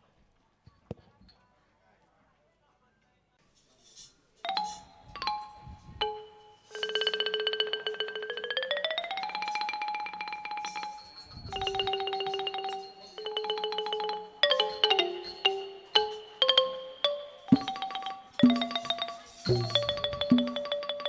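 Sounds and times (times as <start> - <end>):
wooden xylophone tremolo: 3.9 - 21.0
single xylophone notes: 4.5 - 21.0.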